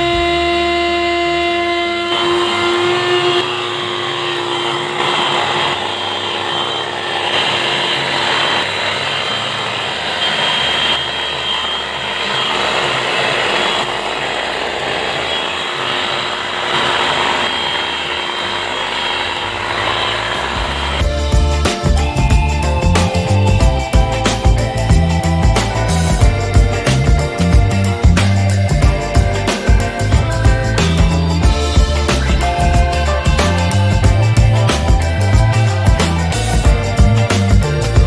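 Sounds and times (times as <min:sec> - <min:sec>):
handheld vacuum cleaner running: 0:00.0 - 0:38.0.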